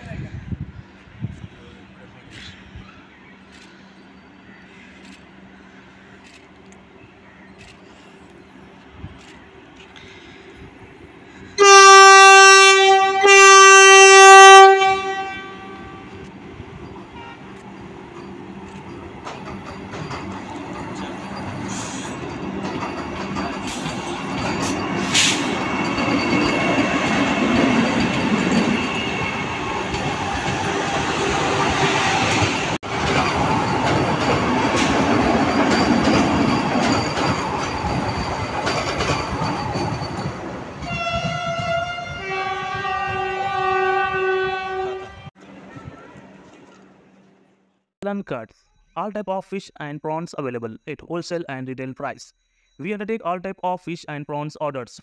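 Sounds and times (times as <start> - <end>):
train horn blasts: 11.6 - 16.3, 17.1 - 17.5, 40.8 - 45.3
train wheels clattering on track: 16.2 - 41.8.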